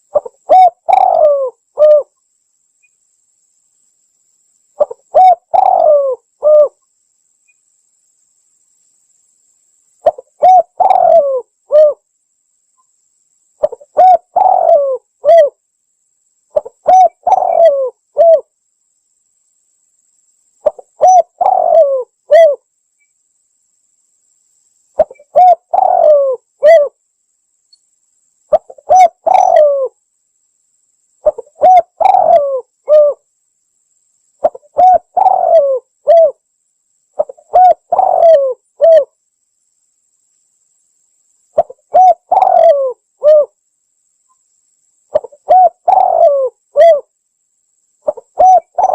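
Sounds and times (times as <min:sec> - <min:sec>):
dove cooing: 0:00.0 - 0:02.1, 0:04.8 - 0:06.8, 0:10.0 - 0:12.0, 0:13.6 - 0:15.6, 0:16.6 - 0:18.5, 0:20.6 - 0:22.6, 0:25.0 - 0:27.0, 0:28.5 - 0:30.0, 0:31.2 - 0:33.2, 0:34.4 - 0:36.4, 0:37.2 - 0:39.1, 0:41.6 - 0:43.6, 0:45.1 - 0:47.1, 0:48.0 - 0:48.9.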